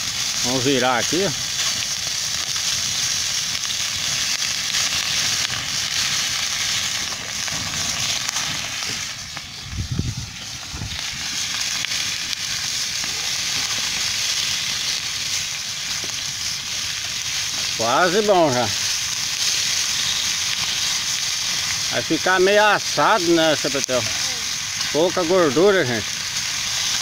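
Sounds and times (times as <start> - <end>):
fish sizzling in a pan: 0.0 - 27.0.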